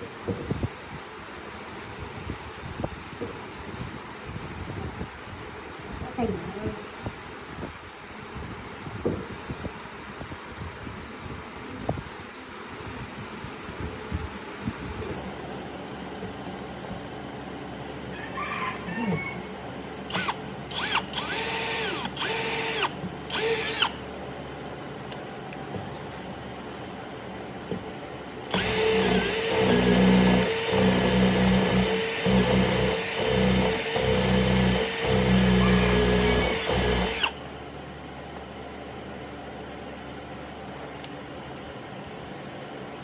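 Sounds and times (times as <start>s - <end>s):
power drill whirring: 20.1s - 24.1s, 28.5s - 37.5s.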